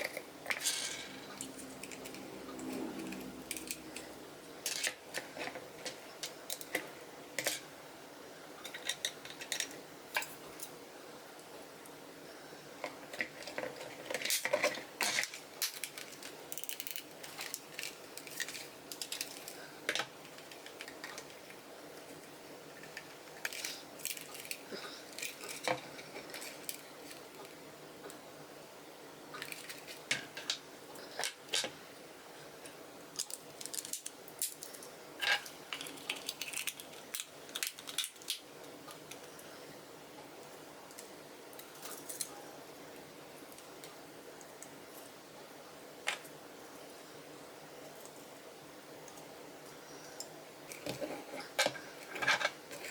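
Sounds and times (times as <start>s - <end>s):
plastic and metal parts clattering: 12.8s - 21.5s, 22.8s - 27.3s.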